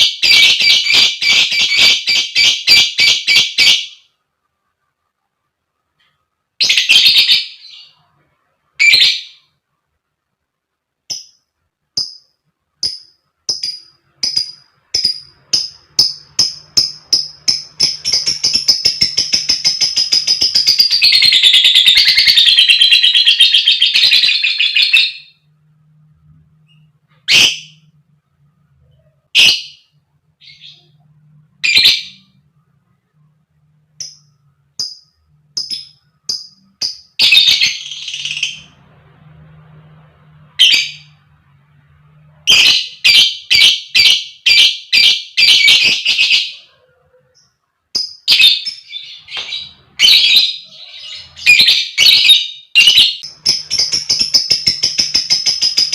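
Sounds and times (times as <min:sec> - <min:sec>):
lovebird shrill chirps: 0:12.0 - 0:25.4, 0:42.5 - 0:46.6, 0:47.4 - 0:55.9
lovebird chattering trill: 0:12.8 - 0:25.2, 0:47.4 - 0:55.9.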